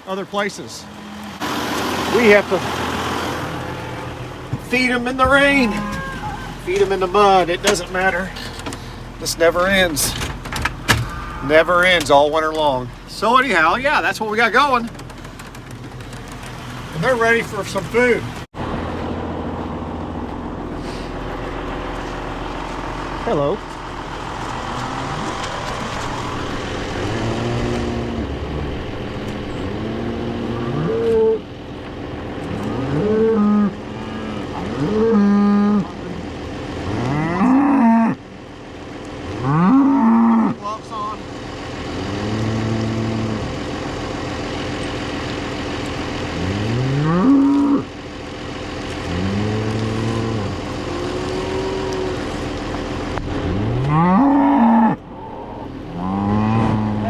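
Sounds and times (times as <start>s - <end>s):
tractor engine idling: 0.0s - 30.8s, 40.6s - 42.0s, 43.4s - 54.0s
cows mooing: 0.7s - 8.7s, 10.9s - 12.2s, 24.4s - 31.5s, 32.5s - 38.2s, 39.3s - 40.6s, 41.9s - 43.6s, 46.3s - 47.9s, 49.0s - 52.6s, 53.4s - 57.0s.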